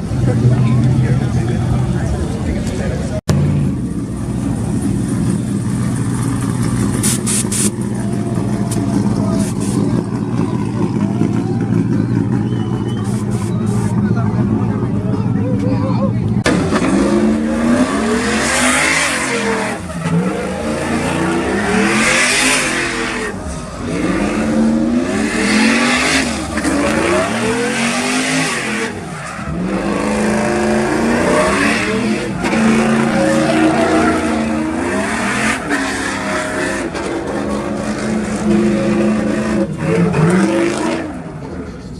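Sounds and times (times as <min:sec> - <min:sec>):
pickup truck engine revving: 0:16.4 - 0:41.6.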